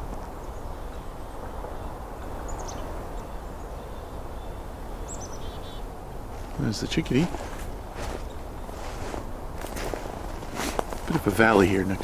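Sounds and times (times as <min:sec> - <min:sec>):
small songbird calls: 0:00.4 - 0:05.9.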